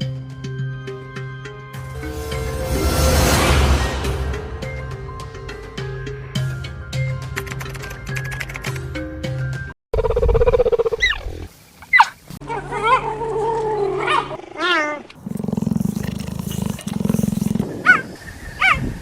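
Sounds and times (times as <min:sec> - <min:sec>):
animal growls and roars: 0:13.5 - 0:17.8.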